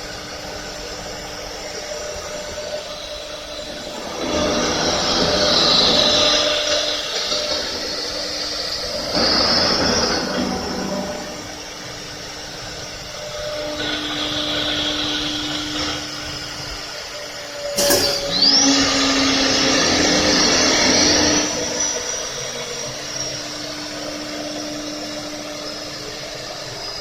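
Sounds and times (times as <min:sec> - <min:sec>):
spindle whine rising: 0:00.0 - 0:27.0
wood router running: 0:00.0 - 0:27.0
sharp machine click: 0:17.8 - 0:18.4.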